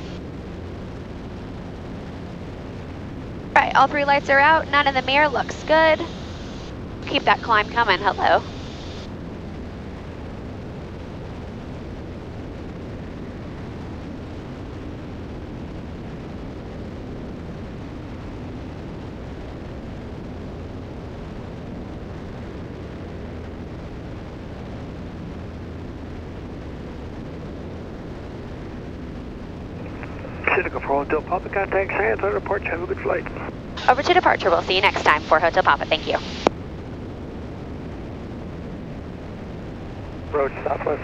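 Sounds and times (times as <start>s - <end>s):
aircraft cabin engine drone: 0.0s - 41.0s.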